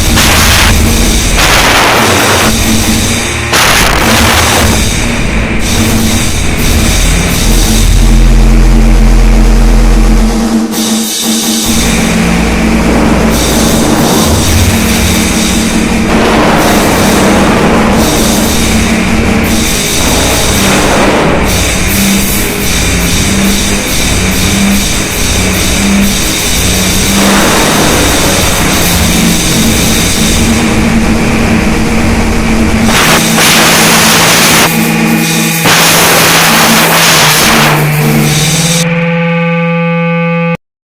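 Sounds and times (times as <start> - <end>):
heavy low rumble: 0.0 - 10.9, 11.5 - 39.3
low drone: 0.0 - 40.5
steady low hum: 0.0 - 40.5
distorted noise music: 0.0 - 40.6
harsh hiss: 32.8 - 38.8.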